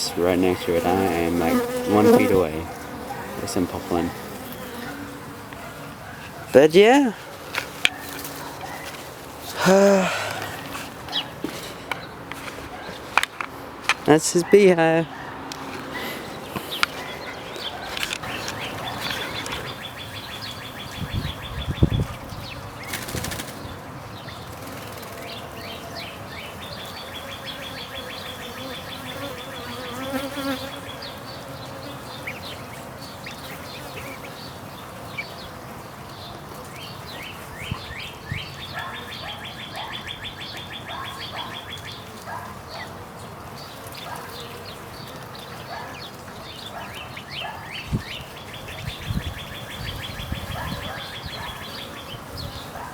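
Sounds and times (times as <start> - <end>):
bee buzzing close by: 0.0 - 6.0, 24.5 - 37.6, 47.7 - 52.9
bees buzzing at a hive: 0.0 - 39.6, 40.2 - 52.9
songbird trilling: 16.2 - 22.6.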